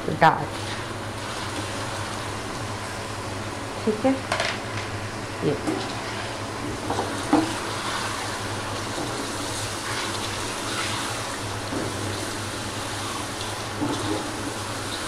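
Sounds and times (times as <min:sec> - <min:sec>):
steady low hum: 0:00.0 - 0:15.0
chicken sizzling in hot oil: 0:06.0 - 0:15.0.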